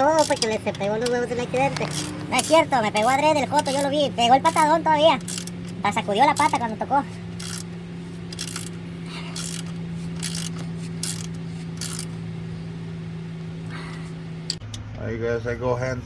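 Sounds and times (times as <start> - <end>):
ratchet wrench strokes: 0.0 - 12.2
steady low hum: 0.0 - 16.0.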